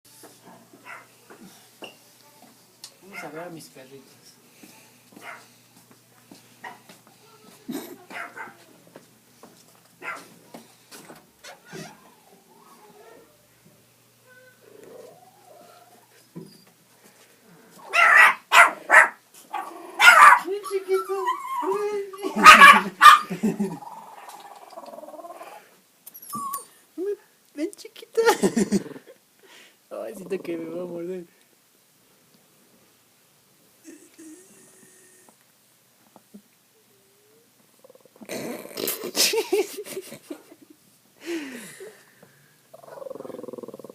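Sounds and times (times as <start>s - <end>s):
dogs barking loudly: 5.2s - 5.5s, 8.1s - 8.6s, 10.0s - 10.3s, 17.8s - 20.6s, 21.6s - 24.4s
dogs whining faintly: 11.4s - 13.4s, 23.8s - 26.8s.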